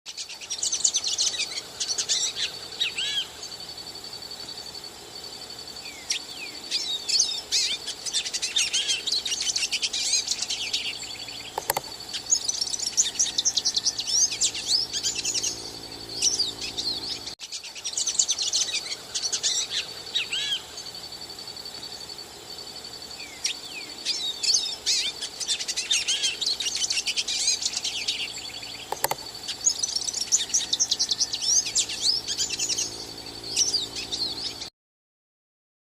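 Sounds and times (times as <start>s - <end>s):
bird singing rapid twittering: 0.1s - 34.7s
faint steady high tone: 0.5s - 34.7s.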